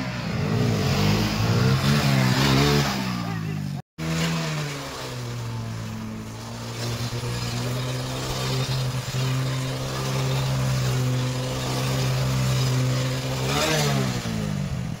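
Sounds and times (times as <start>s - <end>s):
motorcycle engine revving: 0.0s - 15.0s
tyre spinning on road: 4.0s - 15.0s.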